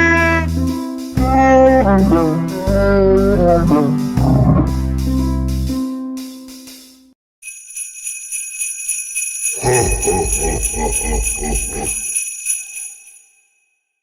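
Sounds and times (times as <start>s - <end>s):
low rhythmic beat: 0.0s - 5.8s
sleigh bells jingling: 7.4s - 13.6s.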